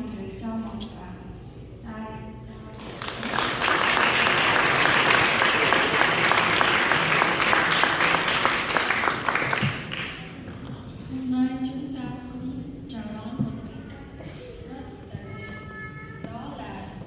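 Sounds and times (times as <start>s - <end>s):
audience applauding: 2.7s - 10.6s.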